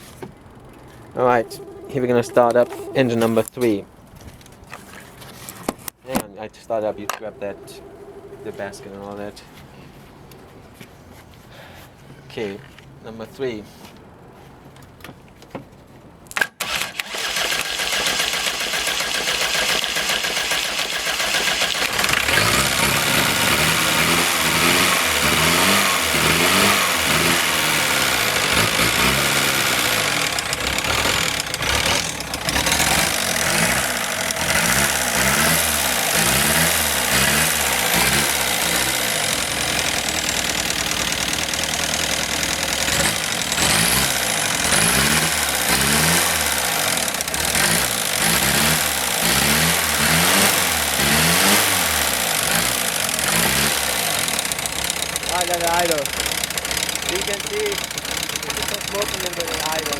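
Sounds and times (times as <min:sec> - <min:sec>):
diesel engine cranking and revving: 0:16.6 - 0:59.9.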